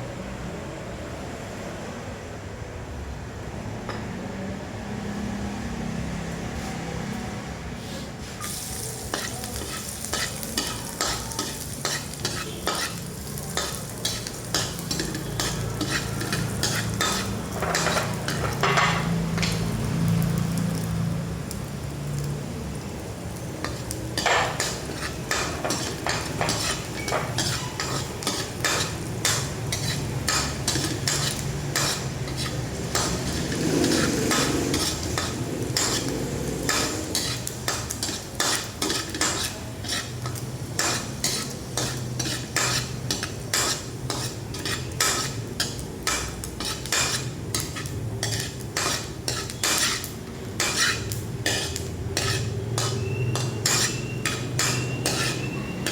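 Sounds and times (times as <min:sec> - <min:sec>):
spatula scraping a pan: 0:07.8 - 0:19.7, 0:23.6 - 0:55.9
food sizzling: 0:07.8 - 0:55.9.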